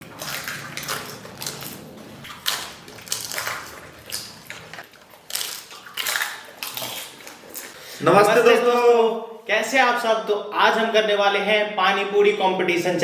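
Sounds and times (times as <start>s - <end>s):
crisp shells crunching: 0.0s - 7.7s.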